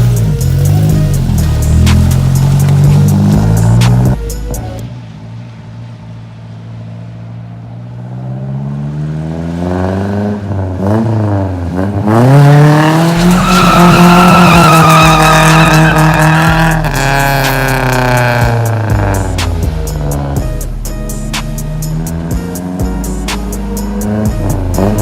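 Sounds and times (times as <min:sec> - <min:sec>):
tires squealing: 0:00.0 - 0:04.2, 0:11.8 - 0:20.4
truck engine revving: 0:00.0 - 0:04.9, 0:08.0 - 0:25.0.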